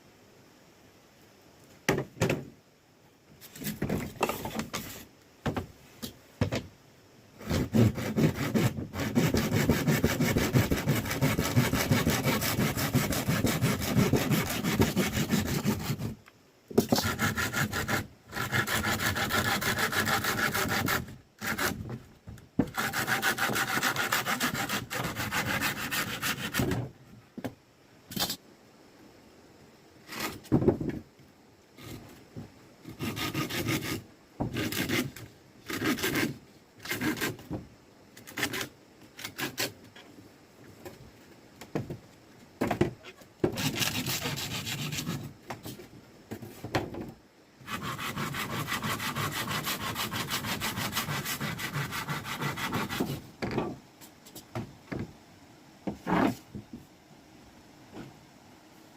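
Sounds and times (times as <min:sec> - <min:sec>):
hand saw cutting wood: 0:07.4 - 0:16.2, 0:16.8 - 0:21.9, 0:22.6 - 0:26.8, 0:32.9 - 0:37.5, 0:38.2 - 0:39.8, 0:43.4 - 0:45.3, 0:47.6 - 0:53.2.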